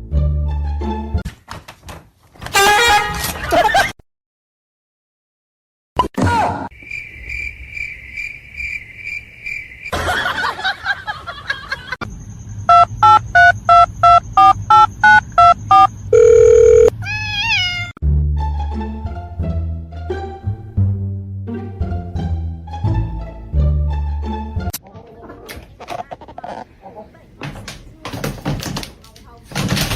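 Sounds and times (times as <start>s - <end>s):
quick electronic beeps: 12.6s - 16.9s
electronic ringing tone: 12.7s - 16.9s.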